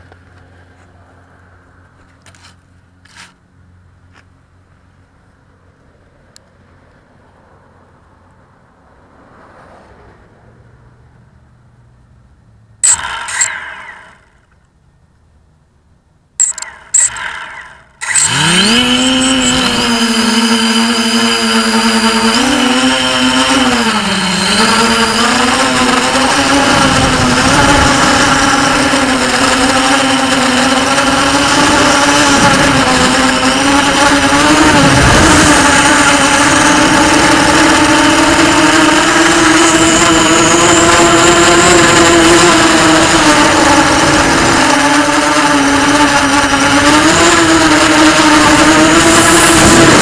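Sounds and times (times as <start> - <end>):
quadcopter motors buzzing: 0.0 - 4.4, 12.8 - 14.6, 16.4 - 50.0.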